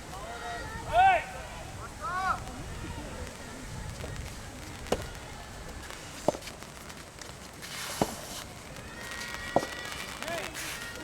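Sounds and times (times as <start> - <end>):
rackets hitting tennis ball: 4.8 - 6.6, 7.7 - 8.4.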